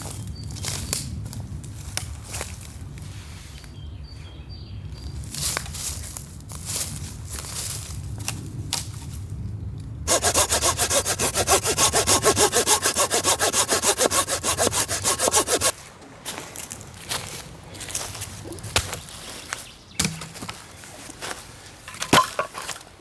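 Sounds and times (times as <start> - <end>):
hand saw cutting wood: 10.1 - 15.7.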